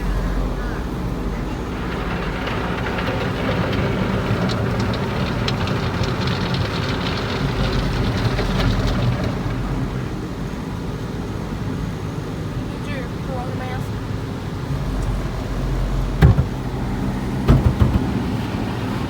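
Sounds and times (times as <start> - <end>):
car wash low rumble: 0.0 - 19.0
water spattering on car: 0.3 - 10.8.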